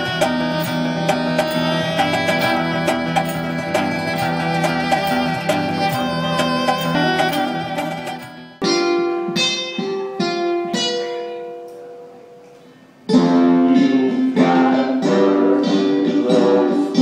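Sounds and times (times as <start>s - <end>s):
band with strummed guitar: 0.0s - 11.3s
guitar chords ringing: 0.0s - 17.0s.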